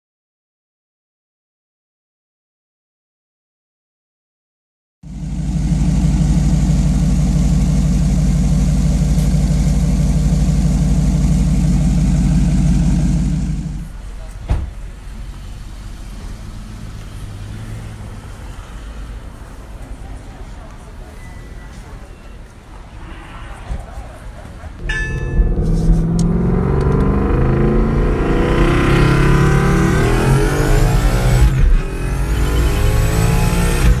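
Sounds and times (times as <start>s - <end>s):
car engine idling: 5.0s - 21.2s, 24.6s - 34.0s.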